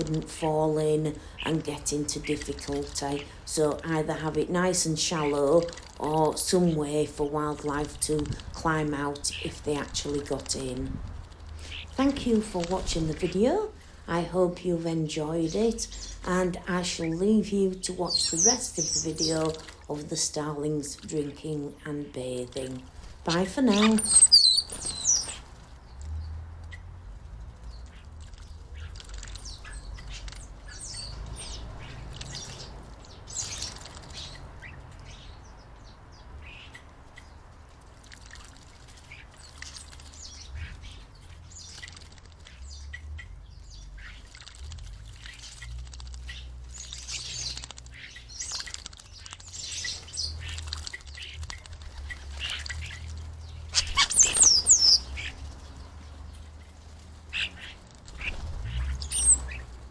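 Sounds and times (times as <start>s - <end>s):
starlings chirping and whistling: 23.7s - 25.4s, 53.7s - 55.4s, 58.2s - 59.6s.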